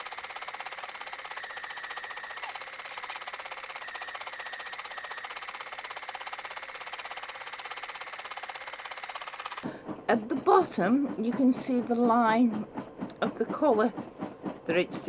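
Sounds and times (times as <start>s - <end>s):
high motor whine: 0.0s - 9.6s
sewing machine needle strokes: 0.0s - 9.6s.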